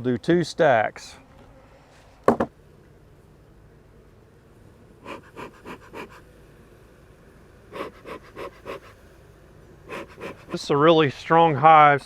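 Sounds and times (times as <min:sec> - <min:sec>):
rapid panting: 0:05.0 - 0:06.2, 0:07.7 - 0:09.0, 0:09.9 - 0:10.6.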